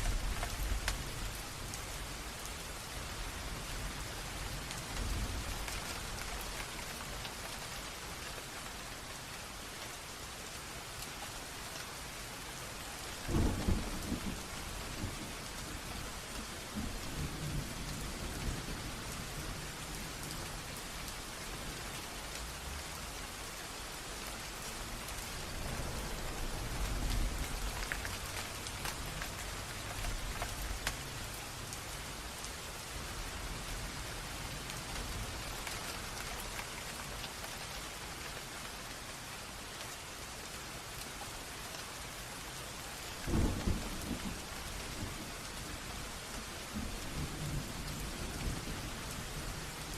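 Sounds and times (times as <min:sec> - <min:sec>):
steady rain: 0:00.0 - 0:49.9
thunder crack and rumble: 0:13.2 - 0:16.1, 0:25.4 - 0:30.9, 0:43.3 - 0:45.3.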